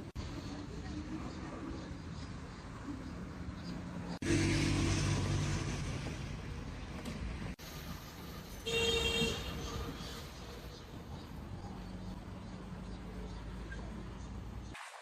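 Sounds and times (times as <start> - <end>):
motor vehicle running: 3.4 - 8.5.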